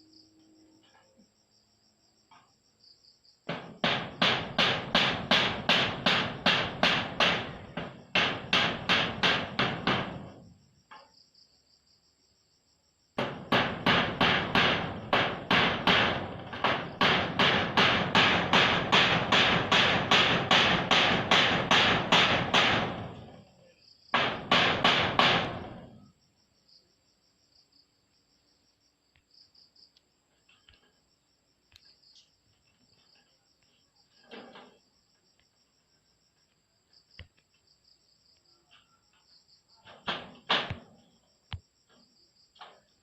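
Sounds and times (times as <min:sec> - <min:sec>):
hammer nailing metal roofing: 0:03.4 - 0:11.1, 0:13.2 - 0:26.2, 0:34.0 - 0:34.9, 0:38.5 - 0:41.3, 0:41.9 - 0:43.0.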